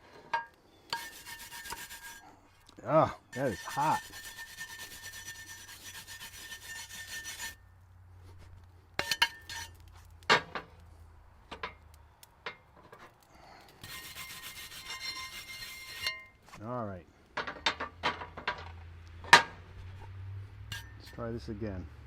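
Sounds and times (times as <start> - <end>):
scraping on a cast-iron waffle iron: 0.0 - 2.4, 3.3 - 7.6, 8.2 - 10.1, 13.7 - 16.6, 19.3 - 21.3.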